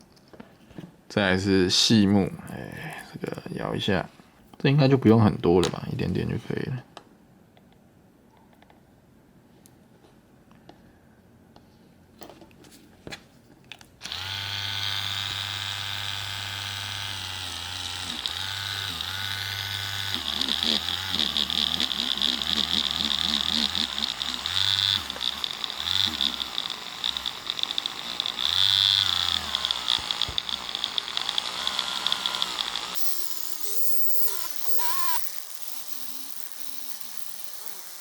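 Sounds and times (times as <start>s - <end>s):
electric polishing tool whining: 14.1s - 38.0s.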